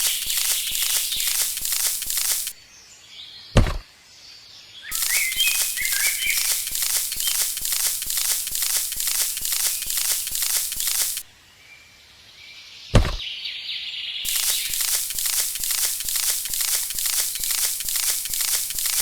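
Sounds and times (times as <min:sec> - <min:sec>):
rhythmic rasping strokes: 0:00.0 - 0:02.6, 0:04.9 - 0:11.2, 0:14.3 - 0:19.0
faint birds chirping: 0:00.0 - 0:19.0
loud thump: 0:03.6 - 0:03.8, 0:13.0 - 0:13.2.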